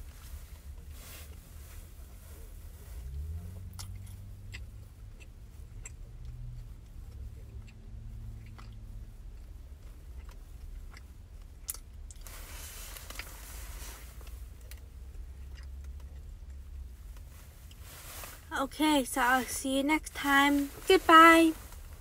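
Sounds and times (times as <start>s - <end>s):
low steady rumble: 0.0s - 22.0s
person chewing: 8.4s - 12.3s, 14.6s - 16.6s.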